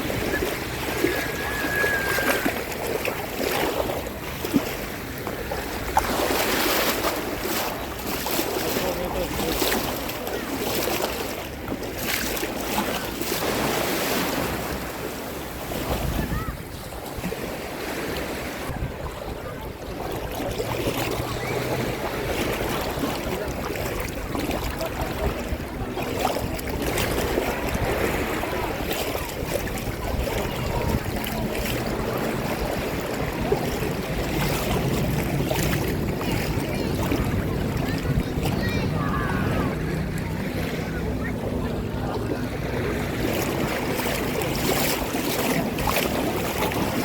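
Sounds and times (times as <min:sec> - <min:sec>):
sea waves washing on shore: 0:00.0 - 0:47.0
wind buffeting microphone: 0:14.3 - 0:47.0.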